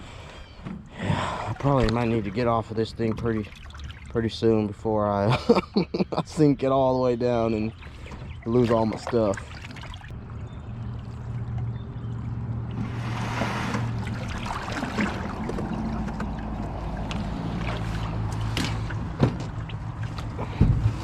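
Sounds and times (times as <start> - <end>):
small boat motor hum: 7.4 - 21.0
rush of water: 12.7 - 21.0.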